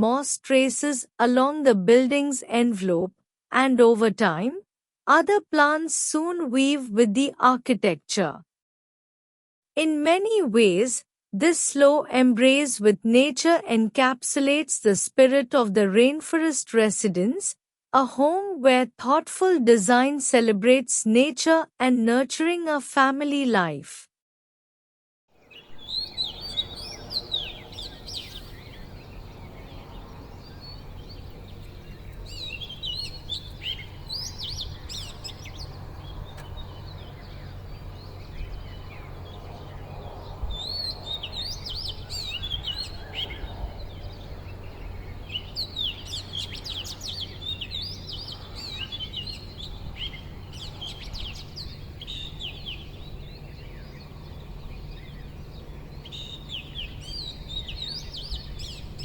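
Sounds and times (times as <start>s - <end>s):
birds chirping and warbling: 25.4s - 59.0s
steady low hum: 25.7s - 59.0s.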